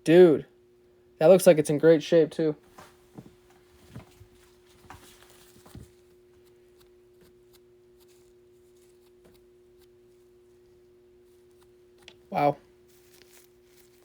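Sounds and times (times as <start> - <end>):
faint steady hum: 0.0 - 14.0
cards and wrappers rustling: 3.8 - 14.0.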